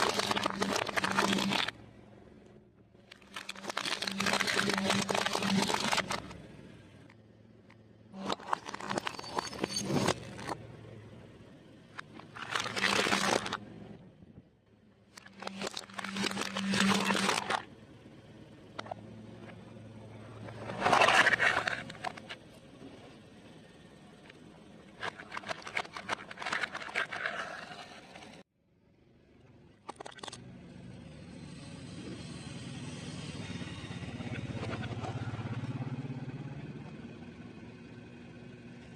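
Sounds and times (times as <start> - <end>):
food crinkling and crunching: 0.0 - 1.7, 3.1 - 6.3, 8.2 - 10.6, 12.1 - 13.6, 15.2 - 17.6, 25.0 - 28.0
crunching of fried food: 0.0 - 1.8, 3.2 - 6.3, 12.2 - 13.6
low vehicle rumble: 17.3 - 29.8, 30.4 - 38.9.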